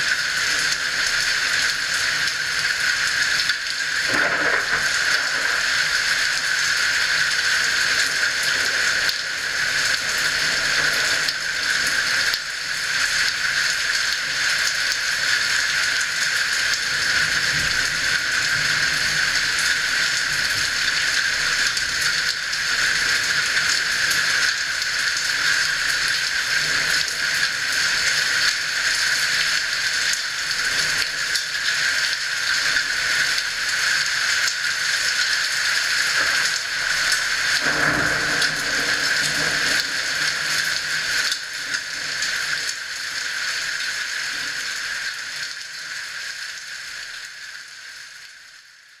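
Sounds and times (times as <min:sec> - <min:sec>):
steady rain falling: 0:00.0 - 0:49.0
low rumble of thunder: 0:04.0 - 0:06.7, 0:37.6 - 0:40.6.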